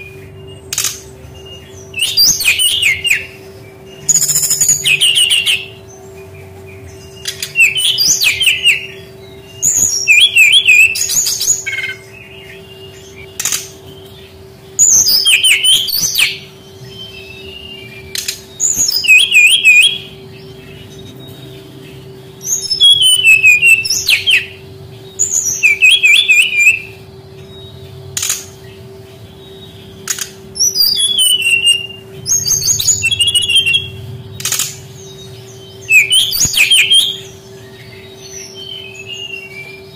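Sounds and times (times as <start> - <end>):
bird warbling song: 0.0 - 39.9
faint low hum: 0.0 - 39.9
sharp clicks: 34.4 - 34.8.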